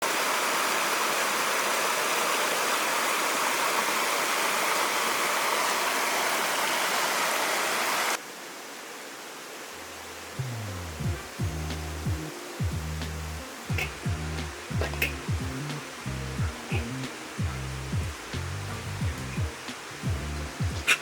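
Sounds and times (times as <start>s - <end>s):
river water rushing: 0.0s - 21.0s
quiet hiss: 8.1s - 21.0s
music: 10.4s - 21.0s.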